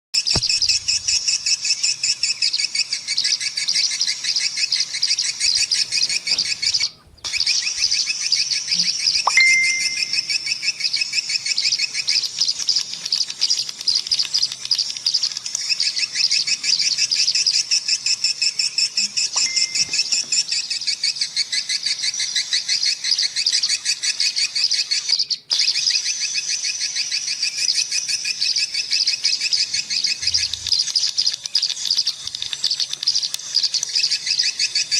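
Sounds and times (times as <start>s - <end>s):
swiftlets twittering: 5.3s - 16.6s, 19.2s - 20.8s.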